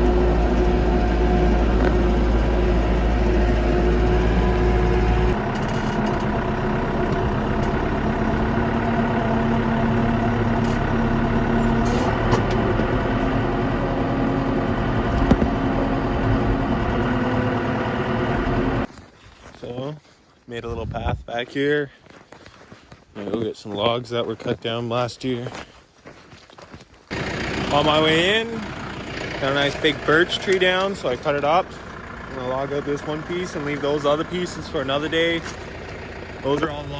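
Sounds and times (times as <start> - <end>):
tractor diesel engine running: 0.0 - 18.9, 27.1 - 36.9.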